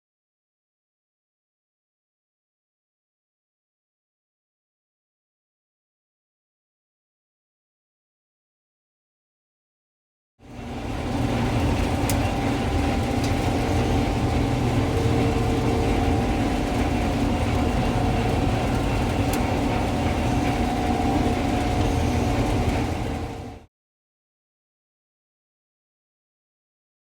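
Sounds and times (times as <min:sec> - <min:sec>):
farm machinery engine rumbling: 0:10.6 - 0:23.6.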